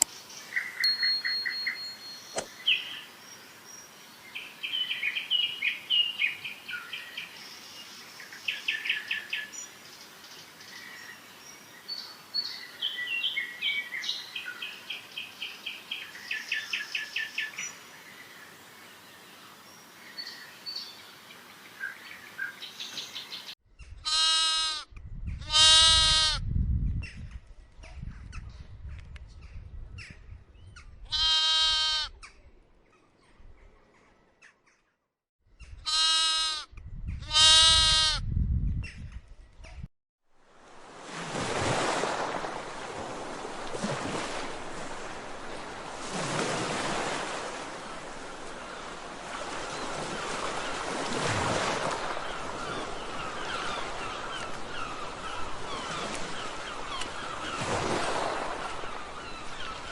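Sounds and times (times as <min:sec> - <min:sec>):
loud drawn-out bleats: 0:24.1 - 0:26.4, 0:31.1 - 0:32.1, 0:35.9 - 0:38.2.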